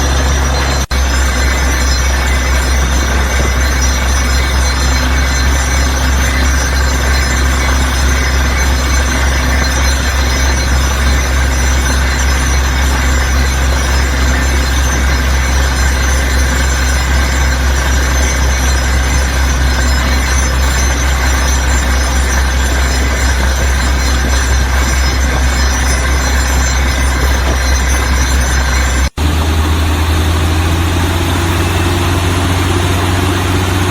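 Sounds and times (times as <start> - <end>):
small motor humming: 0.0 - 33.9.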